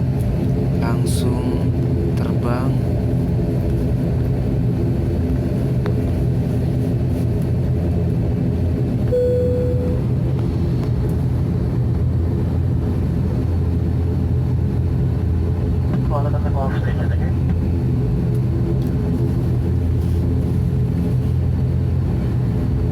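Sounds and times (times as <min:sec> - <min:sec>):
propeller engines droning: 0:00.0 - 0:22.9
short single tone: 0:09.1 - 0:10.2.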